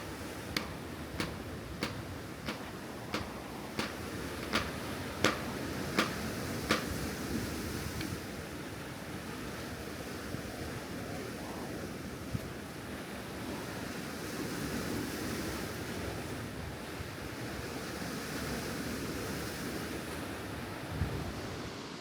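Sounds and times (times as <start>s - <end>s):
ocean surf: 0.0s - 14.5s
wind: 0.0s - 22.0s
faint knock: 0.6s - 6.9s
wind buffeting microphone: 20.1s - 21.7s.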